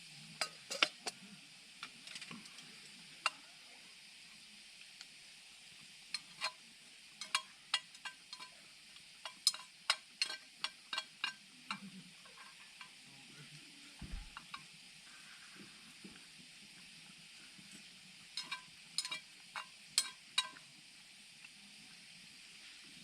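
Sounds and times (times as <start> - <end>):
faint hiss: 0.0 - 23.0
low thump: 14.0 - 14.4.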